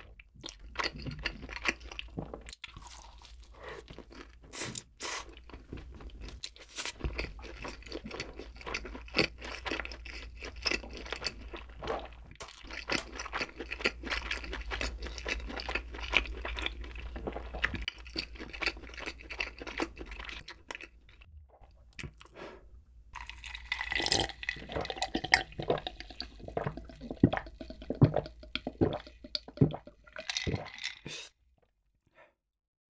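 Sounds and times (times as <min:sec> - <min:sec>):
crunchy chewing: 0:05.2 - 0:21.3
liquid in glass of iced drink: 0:23.2 - 0:31.3
swallowing: 0:23.2 - 0:31.3.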